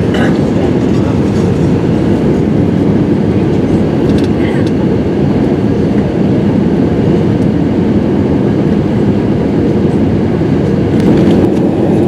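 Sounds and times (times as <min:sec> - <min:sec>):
aircraft cabin engine and airflow roar: 0:00.0 - 0:12.0.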